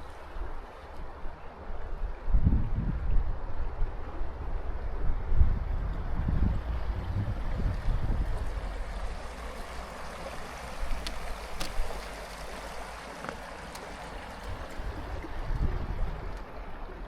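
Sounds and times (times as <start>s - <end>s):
low rumble: 4.6s - 10.1s
water rushing under ice: 6.4s - 17.0s.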